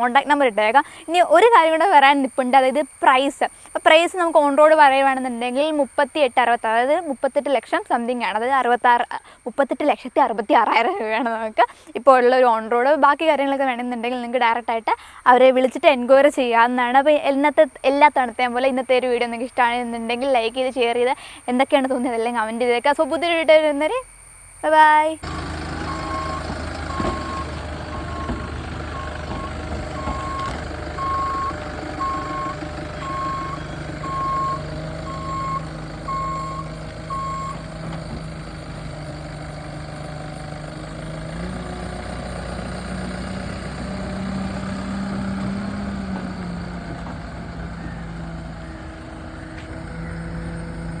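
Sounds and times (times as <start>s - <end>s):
backhoe loader engine running: 25.2s - 51.0s
reversing alarm beeping: 25.2s - 51.0s.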